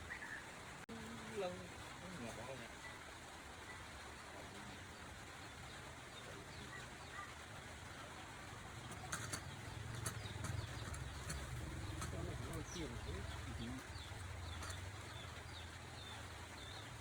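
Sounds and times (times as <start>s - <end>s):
faint bird calls: 0.0s - 0.7s, 2.8s - 17.0s.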